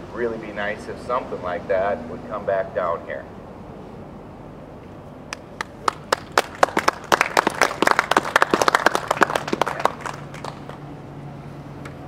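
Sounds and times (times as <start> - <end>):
small crowd applauding: 5.3 - 10.9.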